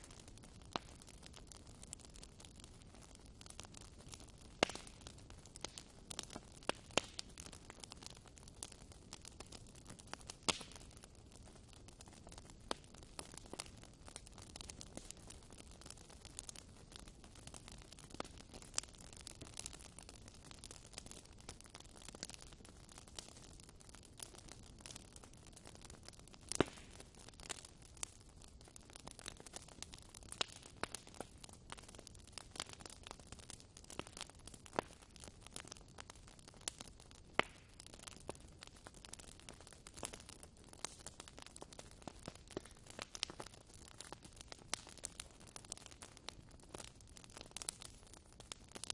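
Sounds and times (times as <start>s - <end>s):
wood fire hissing: 0.0s - 8.7s, 28.8s - 36.8s, 37.4s - 48.9s
fire crackling and popping: 0.0s - 48.9s.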